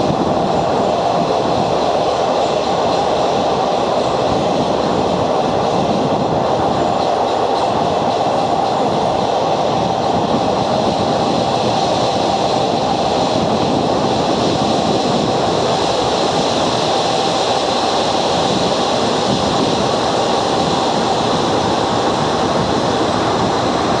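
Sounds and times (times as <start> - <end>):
train rumbling: 0.0 - 24.0.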